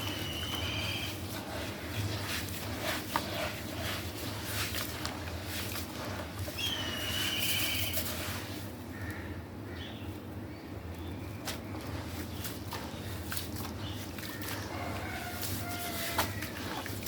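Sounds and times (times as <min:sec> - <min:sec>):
bird whistled call: 0:00.0 - 0:01.1, 0:06.6 - 0:08.0.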